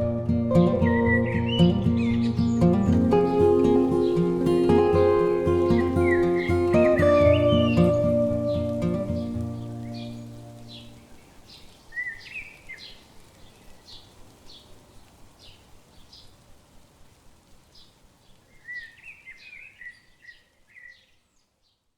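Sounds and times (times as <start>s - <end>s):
bird warbling: 0.0s - 11.0s
music: 0.0s - 11.0s
bird chirping: 0.0s - 14.7s.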